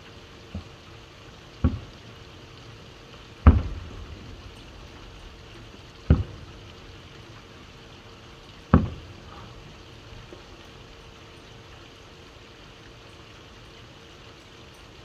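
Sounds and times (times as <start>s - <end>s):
rain hiss: 0.0s - 15.0s
distant firework booms: 1.6s - 2.0s, 3.4s - 7.1s, 8.7s - 9.6s.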